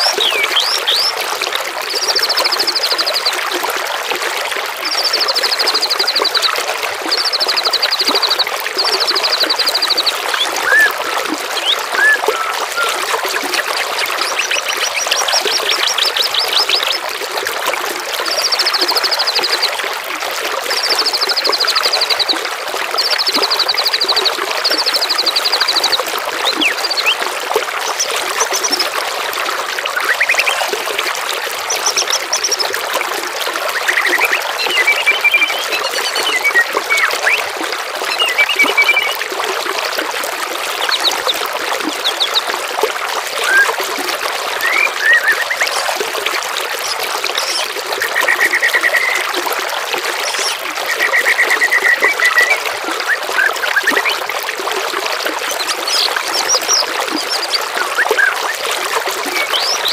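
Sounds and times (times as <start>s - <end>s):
songbird trilling: 0.0s - 1.1s, 9.1s - 13.0s, 14.0s - 17.0s, 44.6s - 45.9s, 50.2s - 52.6s
trickling water: 0.0s - 59.9s
bird chirps: 9.2s - 13.0s, 33.8s - 37.4s, 59.4s - 59.9s.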